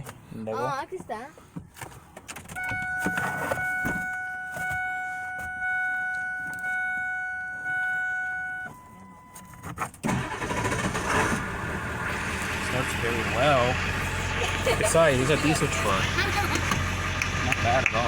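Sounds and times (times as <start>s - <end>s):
dashboard warning chime: 2.6s - 9.7s
diesel engine cranking and running: 10.0s - 18.0s.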